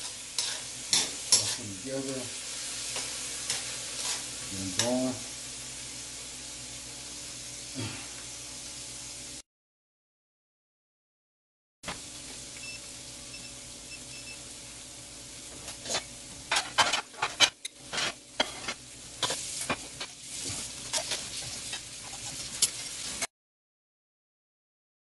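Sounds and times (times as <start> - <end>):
spatula scraping a wok: 0.0 - 5.0, 15.6 - 23.3
food sizzling in oil: 0.0 - 9.4, 11.9 - 23.3.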